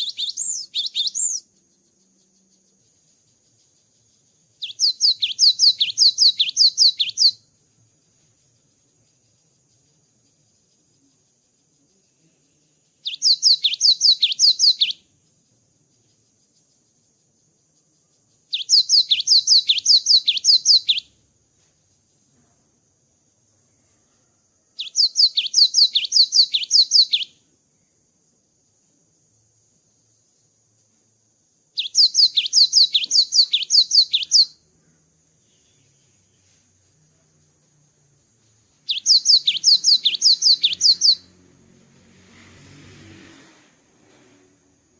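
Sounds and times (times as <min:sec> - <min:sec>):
bird singing high sharp notes: 0:00.0 - 0:01.4, 0:04.6 - 0:07.4, 0:24.9 - 0:27.3, 0:31.8 - 0:34.6, 0:38.9 - 0:41.3
bird singing whistled notes: 0:00.0 - 0:15.3, 0:15.9 - 0:21.2, 0:24.8 - 0:27.5, 0:31.8 - 0:37.2, 0:38.6 - 0:41.4.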